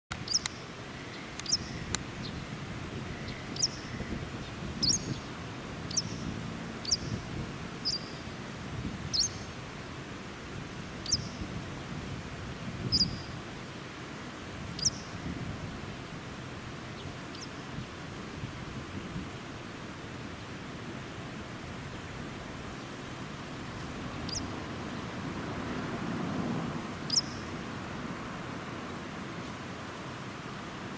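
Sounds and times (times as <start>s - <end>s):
small bird chirping: 0.2s - 2.4s, 3.2s - 4.1s, 4.8s - 5.3s, 5.9s - 7.2s, 7.8s - 8.3s, 9.1s - 9.5s, 11.0s - 11.4s, 12.9s - 13.3s, 14.8s - 15.1s, 17.3s - 17.6s, 24.3s - 24.5s, 27.1s - 27.5s.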